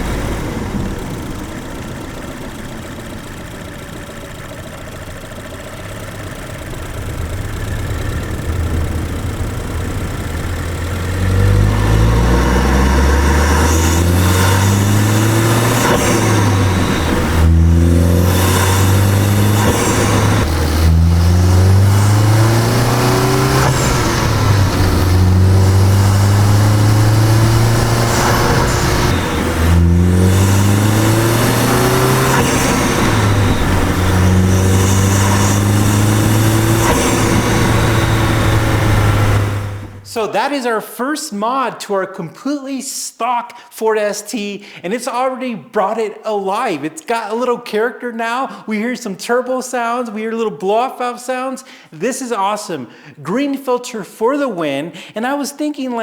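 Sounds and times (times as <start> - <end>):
car engine accelerating: 0.0 - 40.2
turbo and blow-off valve: 5.6 - 40.1.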